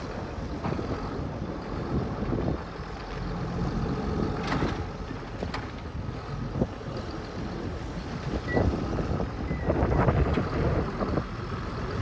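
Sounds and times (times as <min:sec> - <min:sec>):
tractor diesel engine rumbling: 0:00.0 - 0:12.0
clunks and knocks: 0:04.3 - 0:05.9.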